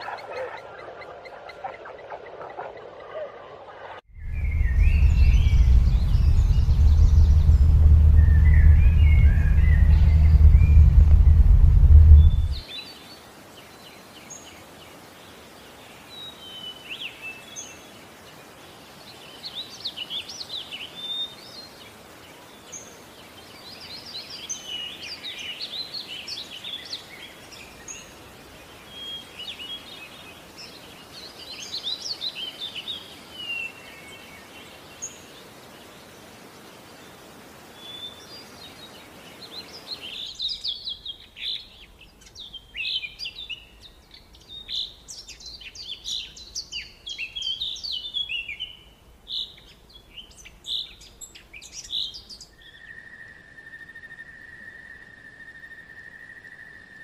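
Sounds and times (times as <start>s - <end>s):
birds chirping and whistling: 4.2s - 12.6s
steady background hiss: 4.2s - 57.0s.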